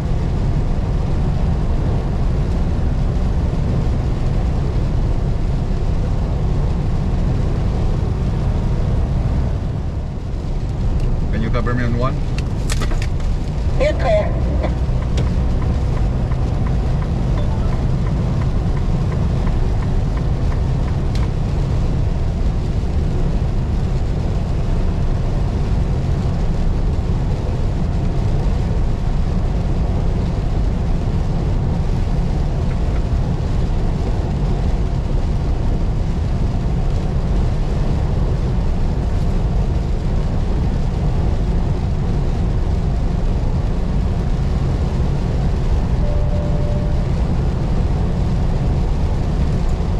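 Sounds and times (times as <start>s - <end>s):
truck engine and tyres rumbling: 0.0s - 49.9s.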